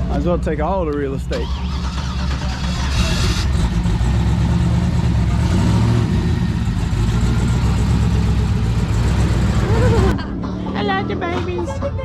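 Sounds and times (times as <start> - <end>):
car engine running at low revs: 1.2 - 11.6.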